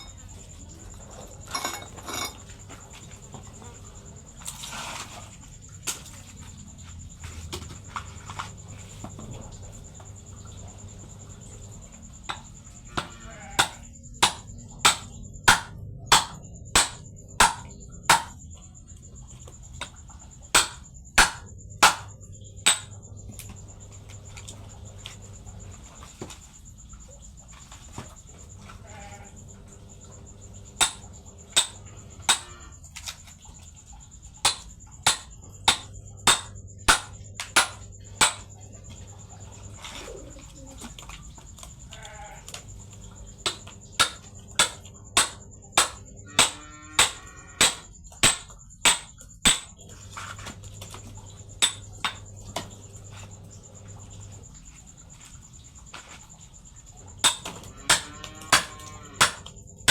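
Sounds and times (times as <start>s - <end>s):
tool striking firewood: 12.3s - 18.4s, 20.6s - 23.0s, 30.8s - 32.6s, 34.4s - 38.5s, 43.4s - 49.8s, 51.6s - 52.7s, 57.2s - 59.9s.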